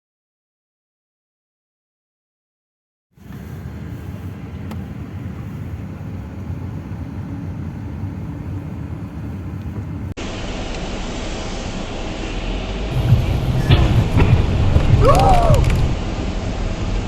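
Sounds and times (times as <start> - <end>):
hiss: 3.2 - 6.4
car driving road noise: 3.2 - 17.0.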